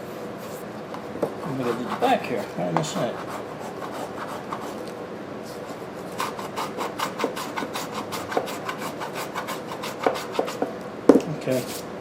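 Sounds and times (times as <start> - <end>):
sanding filler by hand: 1.5 - 4.8, 6.2 - 10.6.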